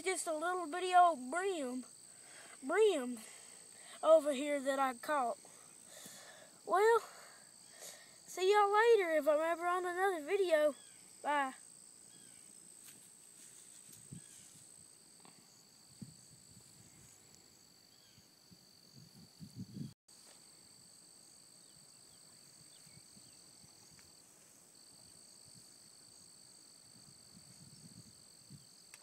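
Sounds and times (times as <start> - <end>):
insect trilling: 0.0 - 19.8.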